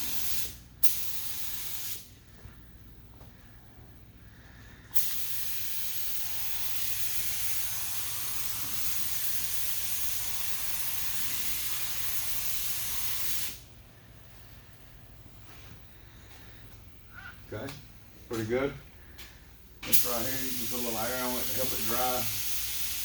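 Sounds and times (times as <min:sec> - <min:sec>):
spray gun hissing: 0:00.0 - 0:02.1, 0:04.9 - 0:13.7, 0:19.8 - 0:23.0.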